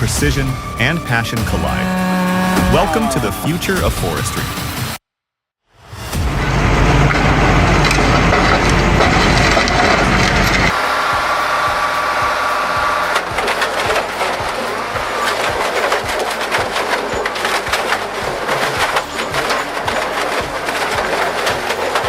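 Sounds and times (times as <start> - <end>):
mechanical whine: 5.8 - 22.0
wood splintering and cracking: 7.0 - 22.0.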